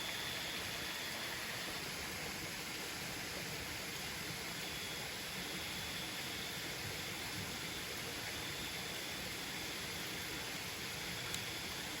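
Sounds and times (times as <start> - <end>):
small tick: 11.3 - 11.5.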